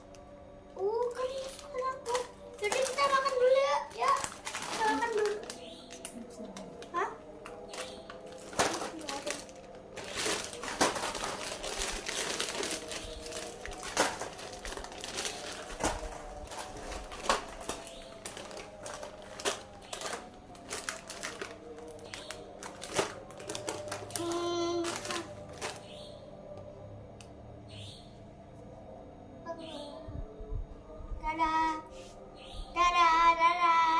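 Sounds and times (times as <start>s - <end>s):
plastic packaging crinkling: 0.9s - 26.2s.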